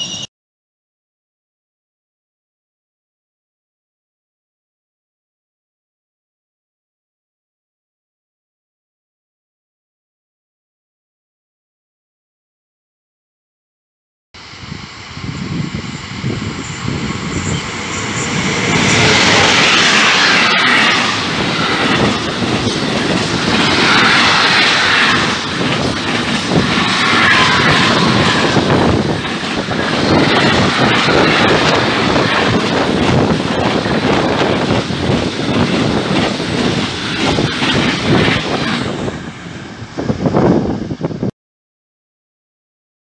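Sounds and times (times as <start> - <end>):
freight train rumble: 0.0 - 0.3, 14.4 - 41.3.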